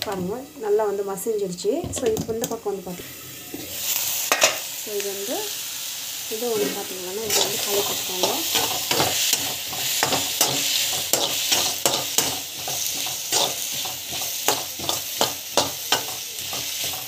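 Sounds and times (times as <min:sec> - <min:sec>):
vegetables sizzling in hot oil: 0:00.0 - 0:17.0
spatula scraping a pan: 0:06.6 - 0:17.0.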